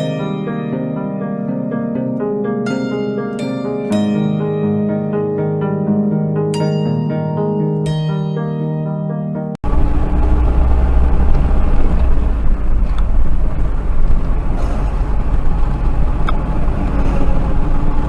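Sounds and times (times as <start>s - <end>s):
car engine rumble: 9.6s - 18.0s
tyres on road: 9.6s - 18.0s.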